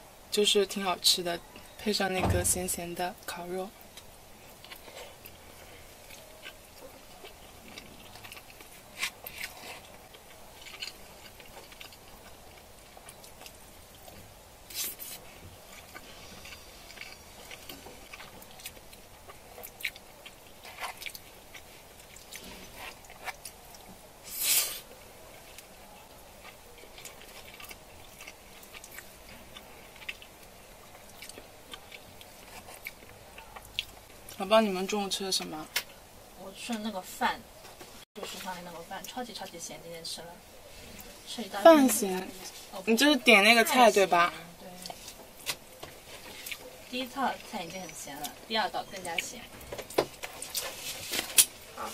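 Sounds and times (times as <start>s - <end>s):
person chewing food: 3.9s - 34.4s, 49.0s - 51.9s.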